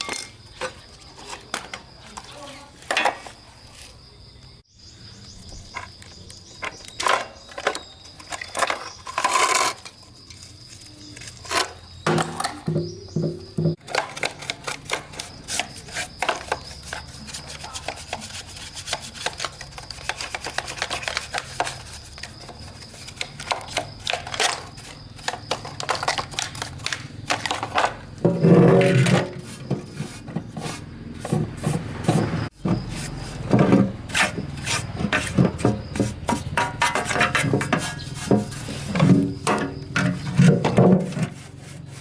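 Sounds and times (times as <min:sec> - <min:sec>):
hand scraping and rubbing: 0:14.3 - 0:42.0.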